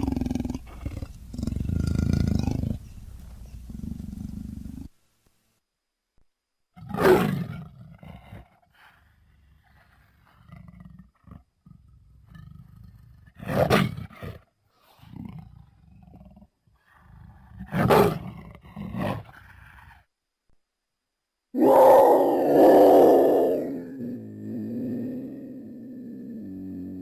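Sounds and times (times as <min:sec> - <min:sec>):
jaguar roaring: 0:21.6 - 0:27.0.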